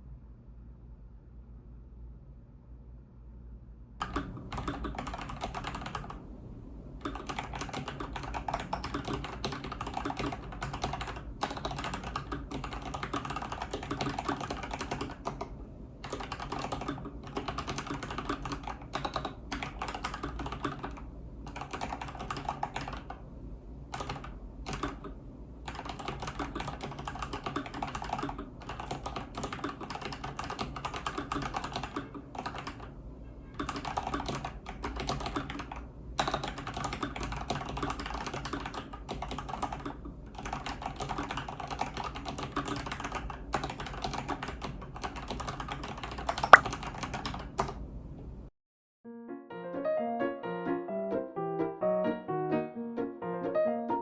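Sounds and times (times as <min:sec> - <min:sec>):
mechanical keyboard typing: 0:04.0 - 0:06.2, 0:07.0 - 0:23.2, 0:23.9 - 0:32.9, 0:33.6 - 0:47.8.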